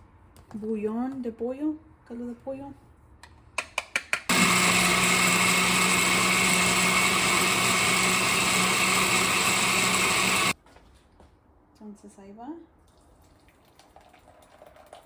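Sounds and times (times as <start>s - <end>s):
blender clicks: 4.3s - 10.6s
blender motor running: 4.3s - 10.6s.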